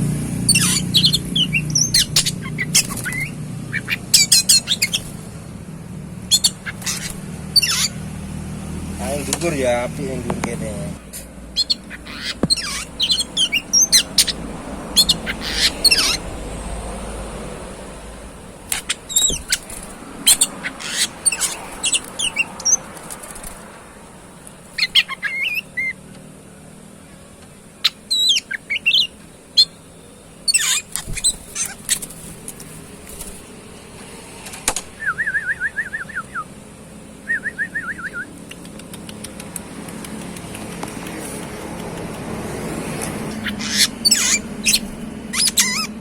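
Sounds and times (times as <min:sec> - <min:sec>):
bird rattling trills: 0:00.0 - 0:08.5, 0:11.5 - 0:26.1, 0:27.7 - 0:33.8, 0:43.0 - 0:46.0
bird whistles and chirps: 0:00.5 - 0:05.1, 0:06.3 - 0:08.0, 0:11.6 - 0:16.2, 0:18.7 - 0:19.7, 0:20.3 - 0:22.8, 0:24.8 - 0:26.0, 0:27.8 - 0:29.8, 0:30.4 - 0:32.0, 0:35.0 - 0:36.5, 0:37.2 - 0:38.3, 0:43.4 - 0:46.0.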